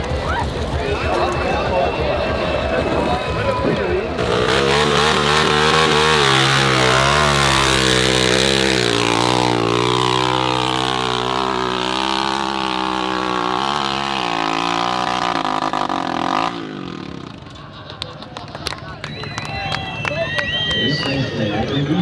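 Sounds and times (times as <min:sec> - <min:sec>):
dirt bike engine revving: 0:00.0 - 0:17.8.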